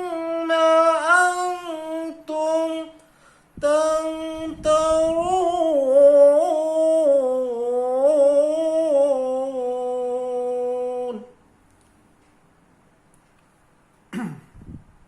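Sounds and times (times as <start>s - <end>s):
person chanting melodic recitation: 0.0s - 3.0s, 3.6s - 11.4s.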